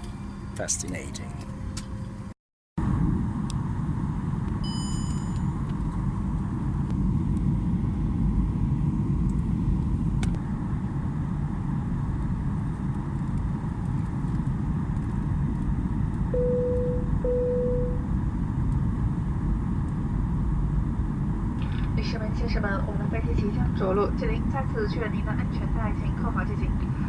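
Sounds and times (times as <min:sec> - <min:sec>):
aircraft engines and airflow rumble: 0:00.0 - 0:27.0
low cabin chime tone: 0:16.3 - 0:18.0.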